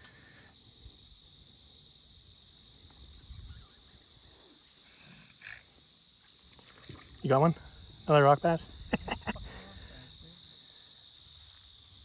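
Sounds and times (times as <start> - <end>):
faint insect chorus: 0.0 - 12.0.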